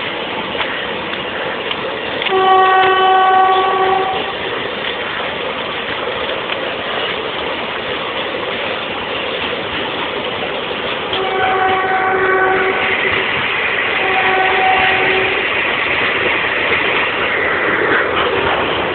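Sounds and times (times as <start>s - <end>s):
train wheels rumbling on rails: 0.0s - 18.9s
train horn blast: 2.2s - 4.4s, 11.2s - 13.2s, 13.9s - 15.6s.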